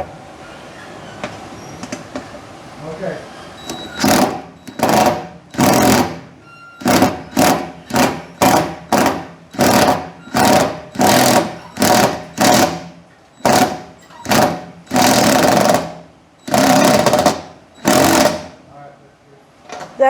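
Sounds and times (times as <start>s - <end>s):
power driver tightening bolt: 16.5s - 18.5s.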